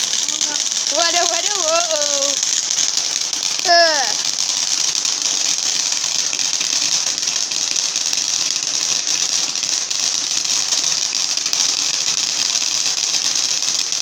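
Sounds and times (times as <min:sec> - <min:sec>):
firework fountain crackling hiss: 0:00.0 - 0:14.0.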